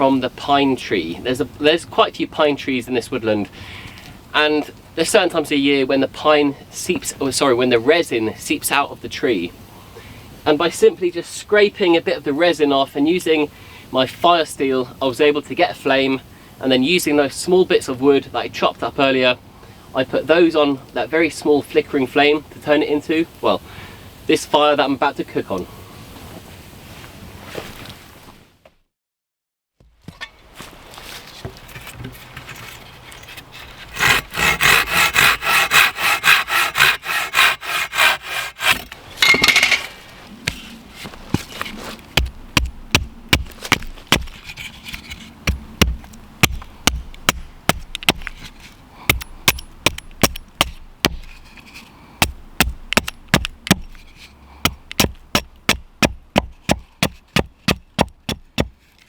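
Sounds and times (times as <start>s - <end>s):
hand saw cutting wood: 33.4s - 39.0s, 41.3s - 59.0s
sharp wooden knocks: 45.4s - 48.4s, 52.2s - 53.9s, 54.6s - 58.8s.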